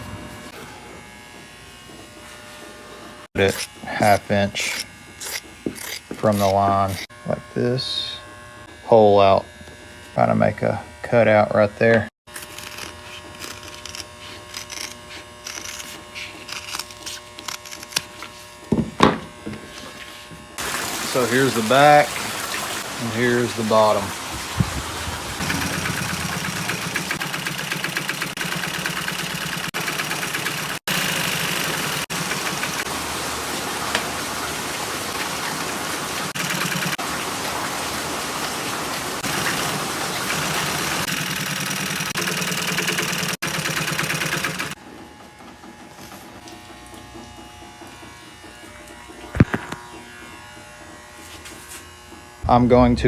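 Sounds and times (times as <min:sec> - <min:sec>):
sewing machine stitching: 0:25.4 - 0:32.9, 0:39.2 - 0:44.8.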